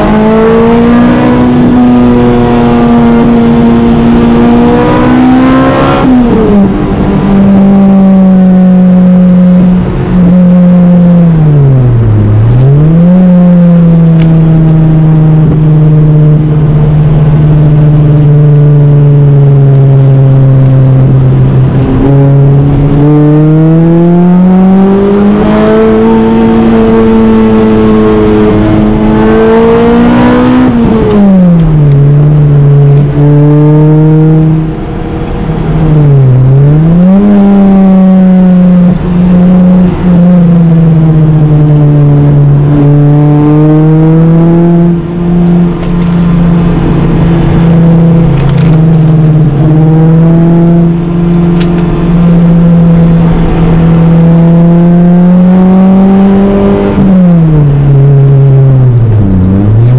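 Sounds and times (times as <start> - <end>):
car engine at high revs: 0.0 - 59.9.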